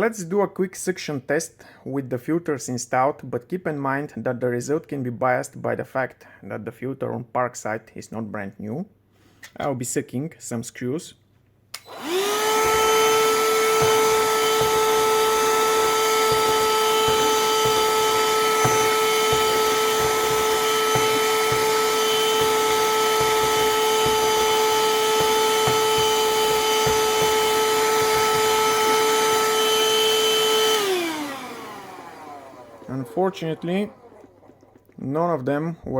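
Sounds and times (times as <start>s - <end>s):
handheld vacuum motor whine: 11.8s - 35.0s.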